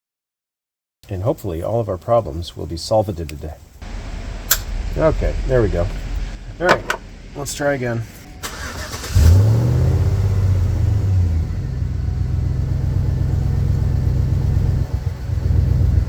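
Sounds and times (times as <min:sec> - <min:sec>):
engine idling: 0:03.8 - 0:16.0
engine cranking and starting: 0:06.6 - 0:07.2, 0:08.3 - 0:11.0.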